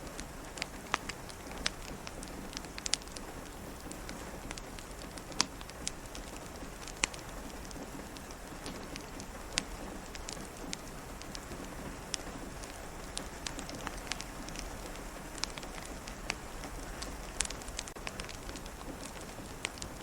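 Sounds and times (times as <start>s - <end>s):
rain pattering: 0.0s - 20.0s
wood fire crackling: 0.0s - 20.0s.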